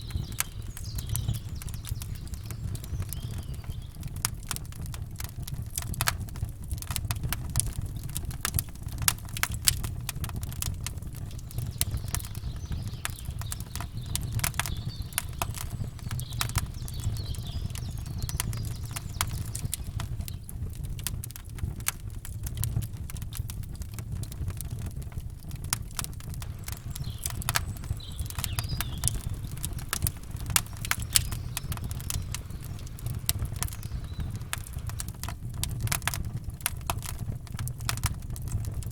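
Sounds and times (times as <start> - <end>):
faint bird chirps: 0.0 - 4.1, 11.4 - 20.4, 26.5 - 35.0
campfire crackling: 0.0 - 38.9.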